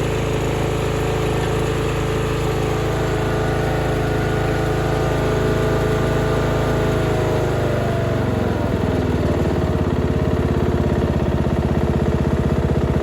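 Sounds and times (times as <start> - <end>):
riding mower engine running: 0.0 - 13.0.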